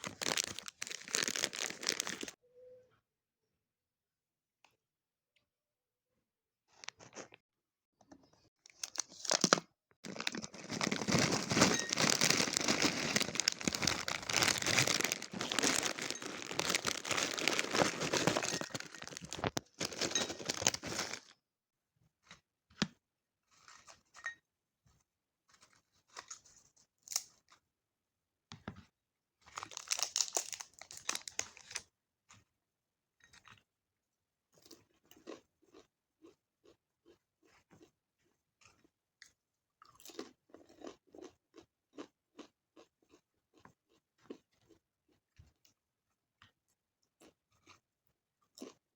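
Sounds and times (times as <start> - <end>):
snack packaging crinkling: 0.0 - 2.4, 8.7 - 21.3, 29.5 - 31.8.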